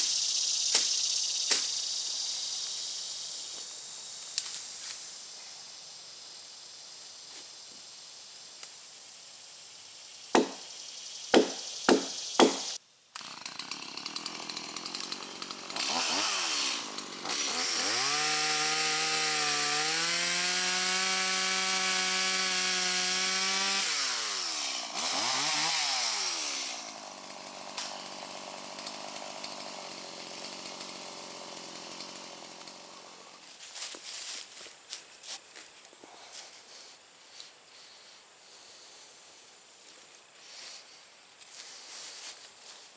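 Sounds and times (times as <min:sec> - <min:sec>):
chainsaw cutting log: 0:10.3 - 0:10.7, 0:11.3 - 0:33.5
sharp knocks: 0:10.4 - 0:10.7, 0:11.3 - 0:12.7.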